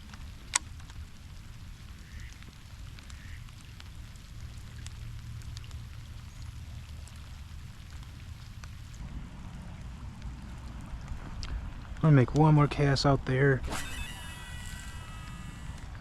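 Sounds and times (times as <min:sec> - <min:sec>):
raindrops ticking: 0:00.0 - 0:13.5, 0:14.1 - 0:16.0
rain falling: 0:00.0 - 0:16.0
low rumble: 0:05.0 - 0:16.0.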